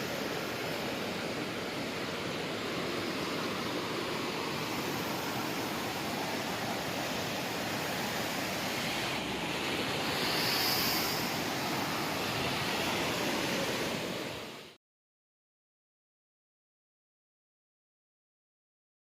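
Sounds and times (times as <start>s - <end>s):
fast-flowing river water: 0.0s - 14.7s.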